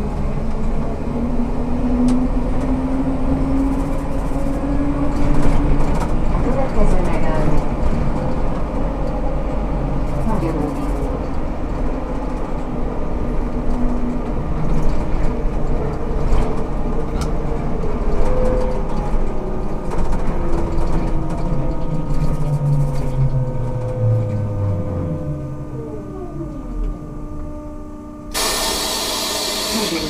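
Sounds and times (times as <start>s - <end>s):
trolleybus rolling noise: 0.0s - 30.0s
electric drive humming: 28.3s - 30.0s.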